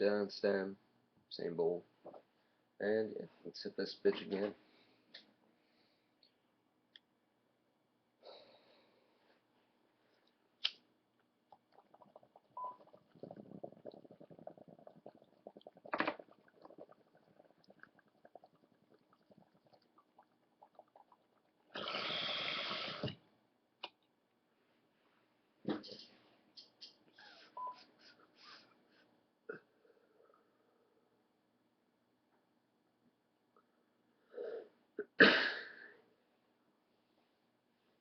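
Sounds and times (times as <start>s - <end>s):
water bubbling in bong: 11.4s - 23.2s.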